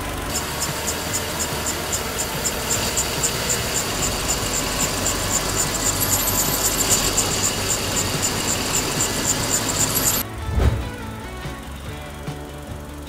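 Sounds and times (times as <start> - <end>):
fast high ticking: 0.0 - 10.2
car engine running: 0.0 - 13.0.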